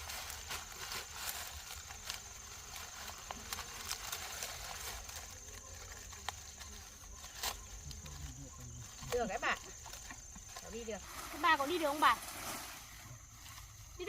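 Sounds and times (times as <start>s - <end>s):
dry corn stalks rustling: 0.0s - 14.0s.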